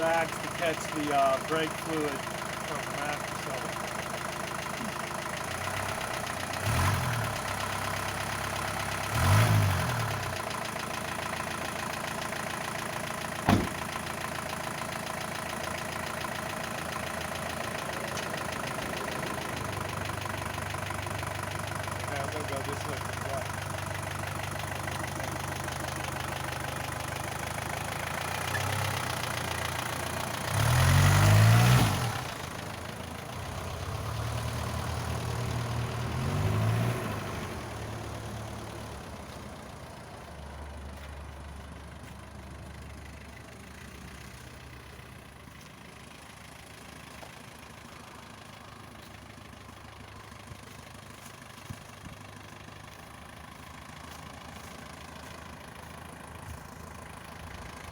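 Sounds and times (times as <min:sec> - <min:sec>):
diesel truck engine revving: 0:00.0 - 0:42.1
diesel engine idling: 0:00.0 - 0:57.9.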